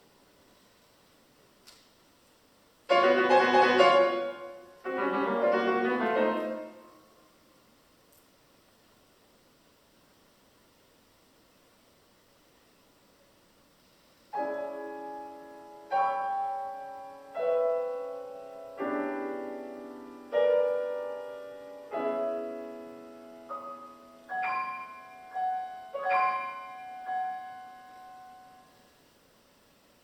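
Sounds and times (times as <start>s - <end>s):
solo piano chords: 2.9s - 7.1s, 14.4s - 28.8s.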